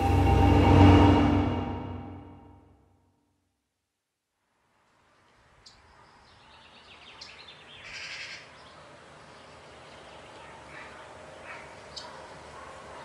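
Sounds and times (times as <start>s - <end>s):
steady outdoor background noise: 4.1s - 13.0s
bird calls: 5.6s - 13.0s.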